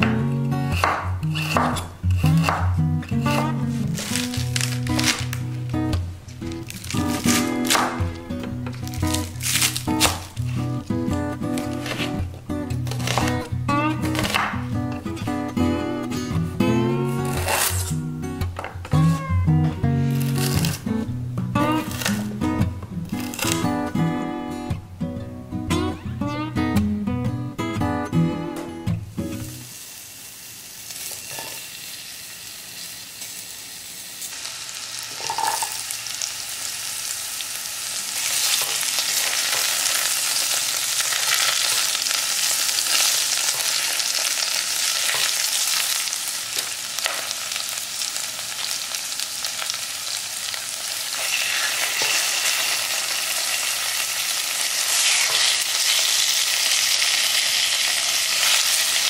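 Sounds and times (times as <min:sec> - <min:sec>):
food sizzling in hot oil: 0:03.2 - 0:08.2, 0:29.1 - 0:59.0.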